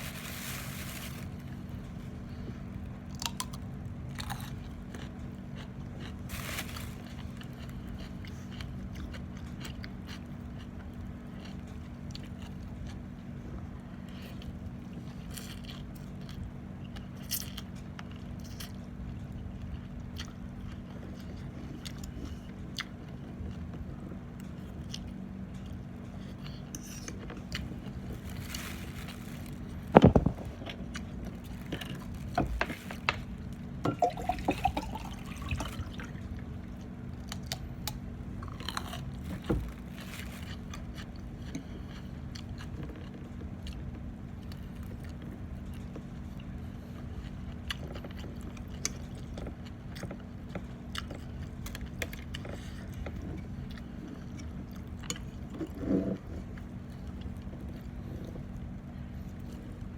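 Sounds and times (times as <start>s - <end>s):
steady low hum: 0.0s - 15.4s, 18.9s - 59.9s
person chewing food: 7.0s - 13.0s, 14.1s - 23.7s, 24.6s - 33.8s, 34.6s - 45.9s.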